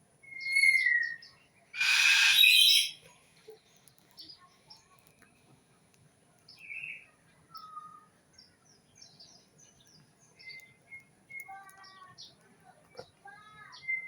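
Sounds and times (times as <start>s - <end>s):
small birds chirping: 0.2s - 14.0s
whistled bird note: 0.3s - 1.2s, 1.8s - 3.0s.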